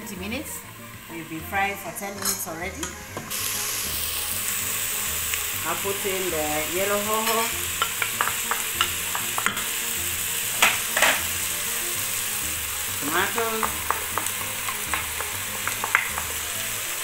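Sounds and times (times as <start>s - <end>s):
food sizzling in a pot: 0.0s - 17.0s.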